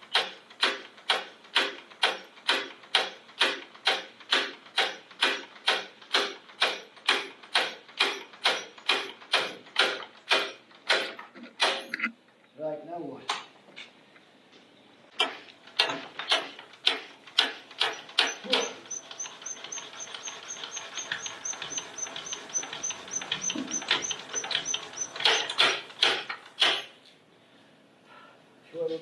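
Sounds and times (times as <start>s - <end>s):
engine turned over by hand: 0.0s - 11.8s, 15.2s - 27.0s
high squeaky ticks: 17.8s - 26.8s.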